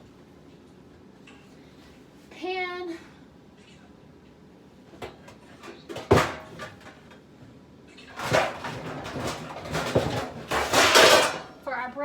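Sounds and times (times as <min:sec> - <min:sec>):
kitchenware scraping and rustling: 0:05.0 - 0:07.1, 0:07.9 - 0:11.6.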